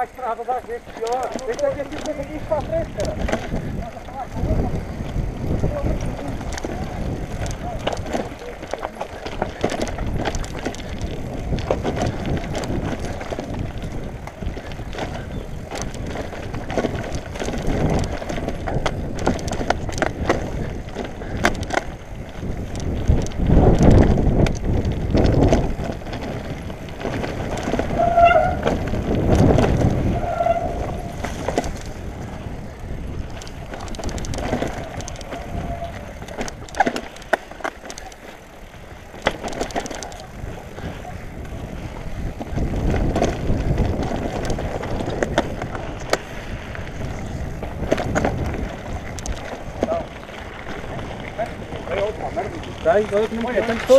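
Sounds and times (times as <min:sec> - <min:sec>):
bike rattling and knocking: 0:00.0 - 0:53.9
tyres rumbling over dirt trail: 0:00.0 - 0:53.9.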